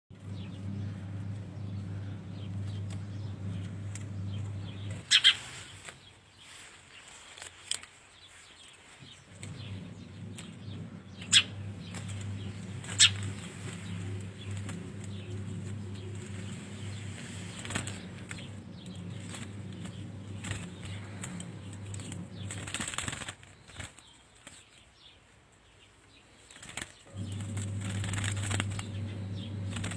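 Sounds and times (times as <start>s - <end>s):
steady low hum: 0.1s - 5.2s, 9.2s - 23.3s, 27.1s - 29.9s
birds fluttering: 0.2s - 29.9s.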